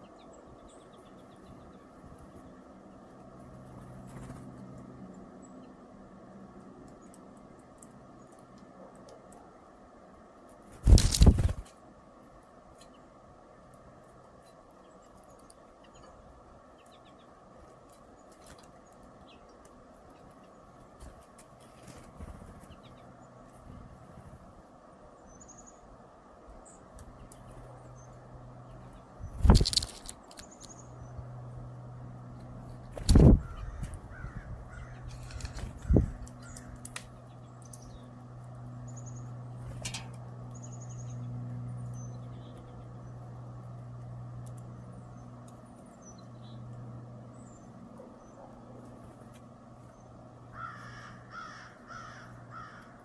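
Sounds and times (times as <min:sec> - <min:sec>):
small birds chirping: 0:00.0 - 0:53.0
steady low hum: 0:00.0 - 0:53.0
crows cawing: 0:33.4 - 0:37.0, 0:50.5 - 0:53.0.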